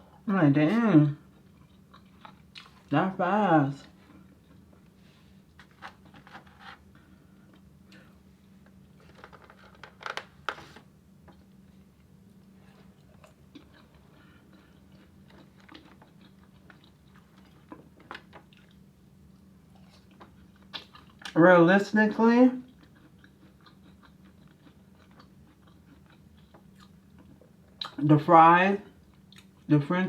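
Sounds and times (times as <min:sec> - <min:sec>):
faint low hum: 0:00.0 - 0:30.0
person chewing food: 0:01.2 - 0:02.9, 0:03.9 - 0:10.1, 0:11.3 - 0:21.4, 0:22.6 - 0:28.0, 0:29.0 - 0:29.7.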